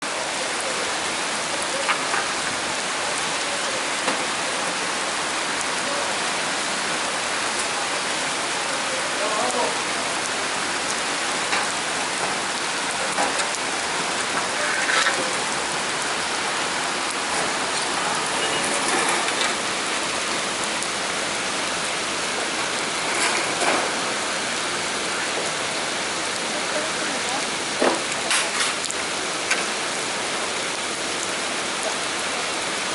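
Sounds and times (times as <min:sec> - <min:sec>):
heavy rain hissing: 0:00.0 - 0:32.9
water splashes and drips: 0:06.8 - 0:32.8.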